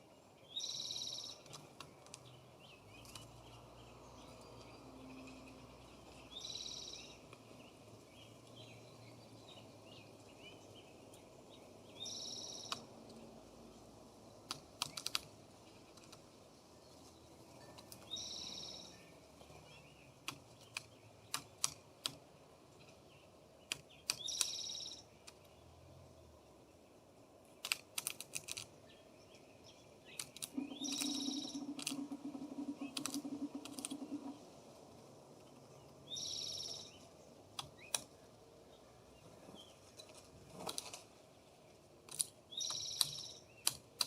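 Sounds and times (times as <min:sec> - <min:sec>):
birds chirping: 0:00.0 - 0:44.0
high-pitched bird call: 0:30.5 - 0:34.4, 0:36.1 - 0:37.0.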